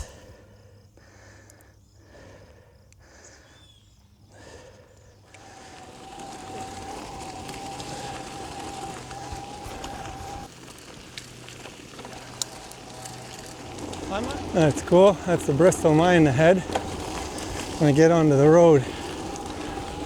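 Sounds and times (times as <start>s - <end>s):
wind: 0.0s - 20.0s
electric bike motor whining: 5.2s - 20.0s
tyres on gravel: 5.2s - 20.0s.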